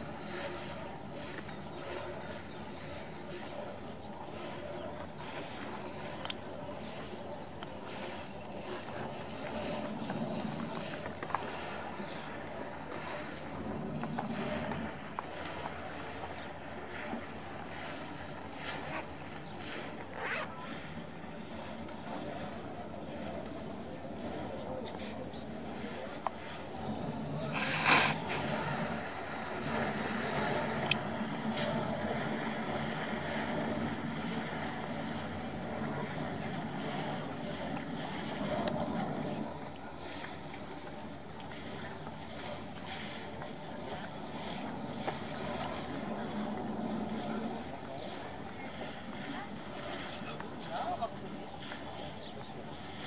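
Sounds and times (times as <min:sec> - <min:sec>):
boat engine running: 0:00.0 - 0:53.0
water noise: 0:00.0 - 0:53.0
wind: 0:00.0 - 0:53.0
short rasping scrapes: 0:27.5 - 0:28.5.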